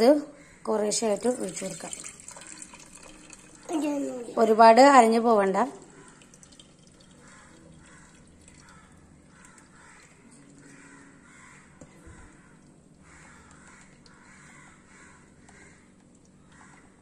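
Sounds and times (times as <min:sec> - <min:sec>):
faint bird calls: 0:07.2 - 0:17.0.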